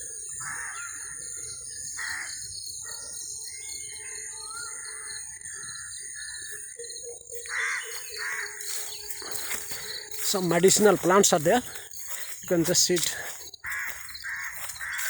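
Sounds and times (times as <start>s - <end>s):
high-pitched insect drone: 0.0s - 15.0s
small birds chirping: 0.0s - 15.0s
crows cawing: 0.4s - 1.2s, 2.0s - 2.5s, 7.4s - 15.0s.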